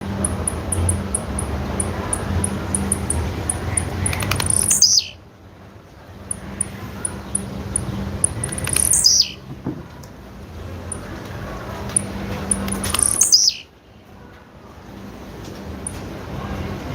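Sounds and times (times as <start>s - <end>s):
low steady hum: 0.0s - 16.9s
bird short high chirps: 3.5s - 5.2s, 8.4s - 9.4s, 12.6s - 13.7s.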